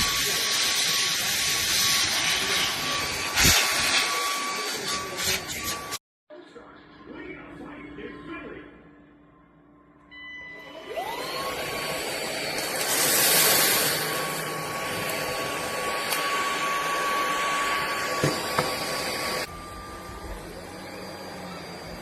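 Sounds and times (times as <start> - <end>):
stick vacuum motor running: 10.9 - 22.0.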